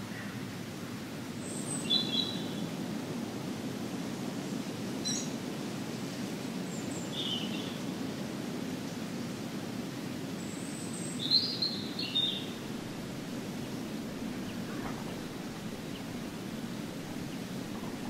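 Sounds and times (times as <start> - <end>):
high bird calls: 11.3 - 18.0
low background rumble: 12.2 - 18.0.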